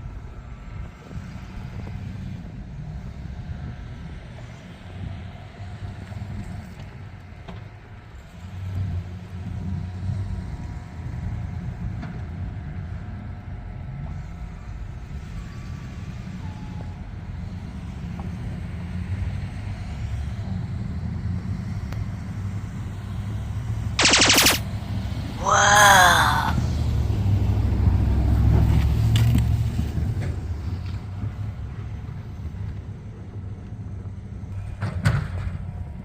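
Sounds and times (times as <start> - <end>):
rapid buzzing burst: 24.0 - 24.6.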